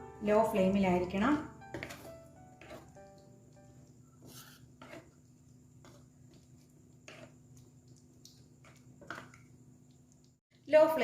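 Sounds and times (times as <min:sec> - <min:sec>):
spoon scraping in gravy: 0:01.7 - 0:09.6.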